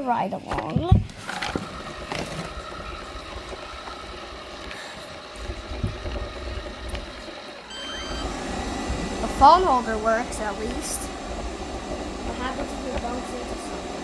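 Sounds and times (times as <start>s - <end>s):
robot vacuum humming: 1.2s - 14.0s.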